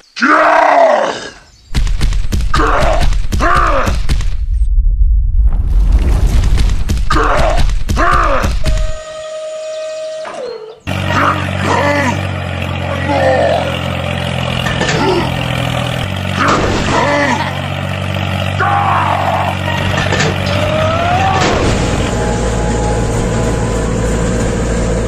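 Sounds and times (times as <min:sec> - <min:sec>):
small engine running: 0:10.8 - 0:25.0.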